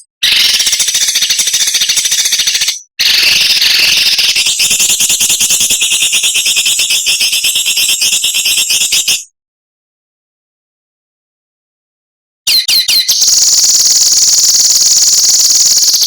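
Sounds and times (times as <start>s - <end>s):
rattling bird trill: 0.0s - 9.2s, 12.5s - 16.0s
songbird scratchy trills: 12.5s - 16.0s.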